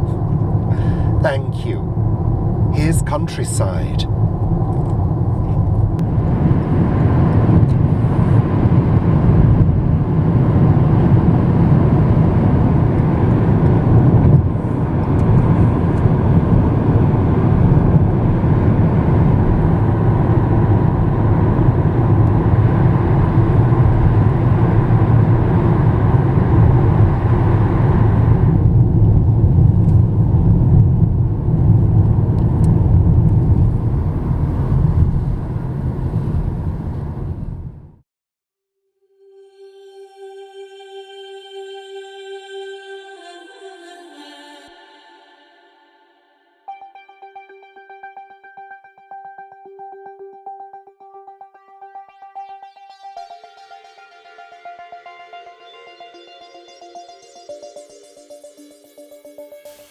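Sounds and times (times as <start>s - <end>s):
engine and tyre rumble: 0.0s - 38.0s.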